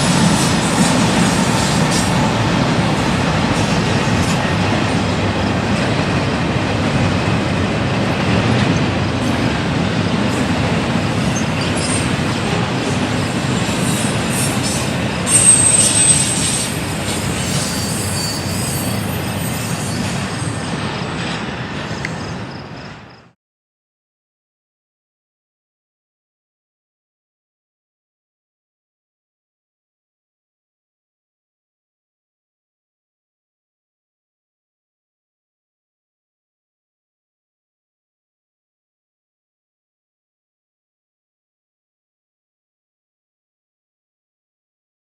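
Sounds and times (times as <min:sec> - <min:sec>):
freight train rumbling: 0:00.0 - 0:23.4
high wheel squeal: 0:13.6 - 0:21.2.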